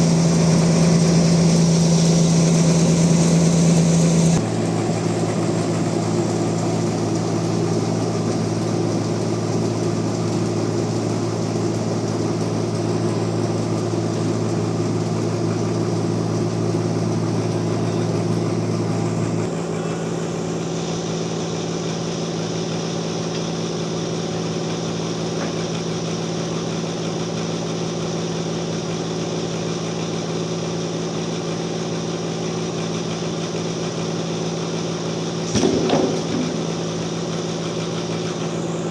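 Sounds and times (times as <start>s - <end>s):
bandsaw mill humming: 0.0s - 10.6s, 32.3s - 38.9s.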